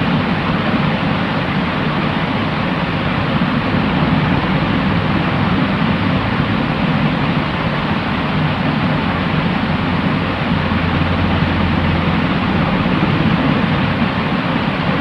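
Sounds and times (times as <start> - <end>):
white noise hiss: 0.0 - 15.0
low rumble: 3.1 - 14.3.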